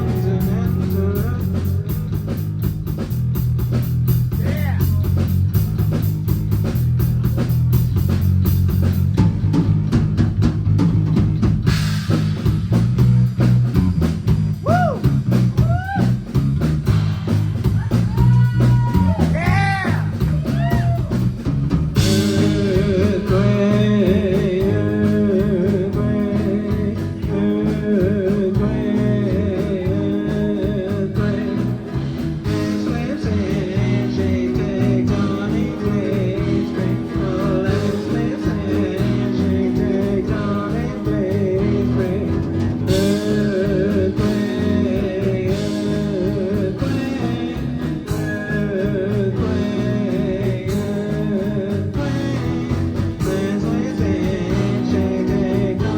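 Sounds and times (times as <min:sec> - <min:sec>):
person singing: 0:00.0 - 0:02.3, 0:22.0 - 0:55.9
live rock band playing: 0:00.0 - 0:55.9.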